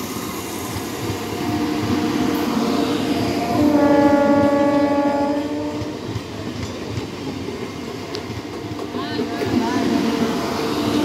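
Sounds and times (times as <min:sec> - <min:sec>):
train coaches rumbling on rails: 0:00.0 - 0:11.0
train horn: 0:01.4 - 0:02.5, 0:03.4 - 0:06.0.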